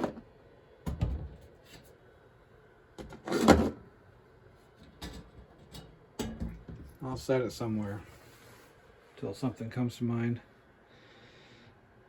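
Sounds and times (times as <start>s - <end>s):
handling knocks and clunks: 4.8s - 7.0s.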